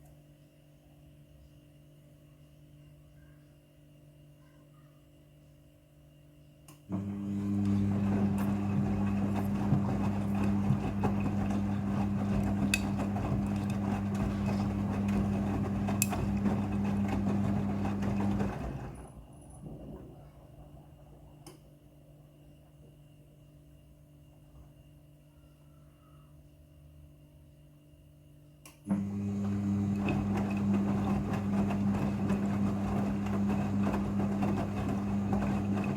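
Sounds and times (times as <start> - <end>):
washing machine pump humming: 6.9 - 23.4, 28.9 - 35.9.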